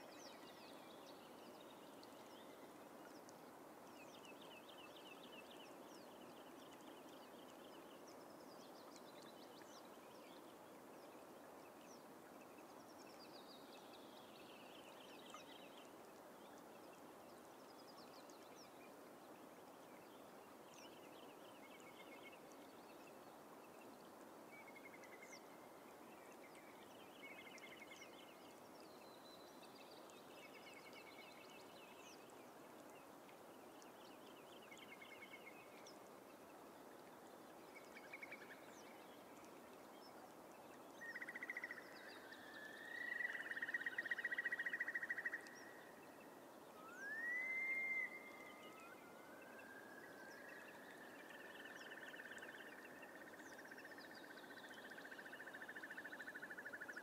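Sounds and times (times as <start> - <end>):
faint hiss: 0.0 - 57.0
rising whistled bird call: 46.8 - 49.0.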